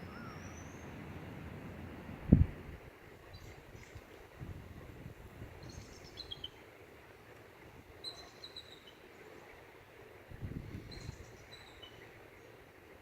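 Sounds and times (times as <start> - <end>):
bird chirping: 5.6 - 6.6, 10.9 - 12.2.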